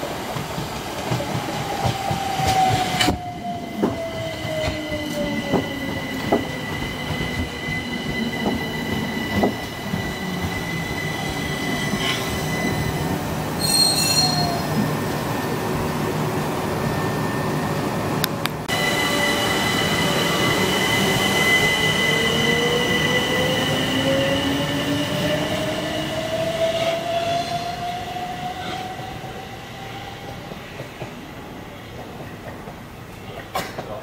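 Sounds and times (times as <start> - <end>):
high squeal of wheels and brakes: 4.5 - 14.8.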